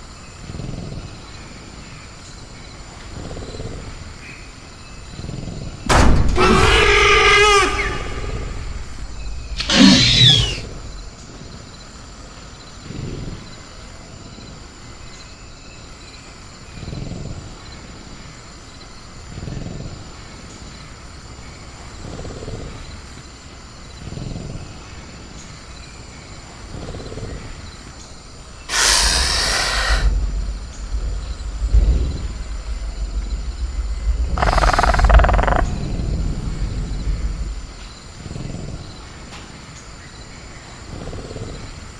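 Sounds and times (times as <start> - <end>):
high cricket drone: 0.0 - 41.9
creature screech: 6.4 - 8.6, 9.6 - 10.8, 28.7 - 30.1, 34.4 - 35.7
low rumble: 8.0 - 11.2, 28.6 - 39.2
harsh creature roars: 9.6 - 10.8, 28.7 - 30.3, 34.1 - 37.7
low creature growls: 28.7 - 38.9.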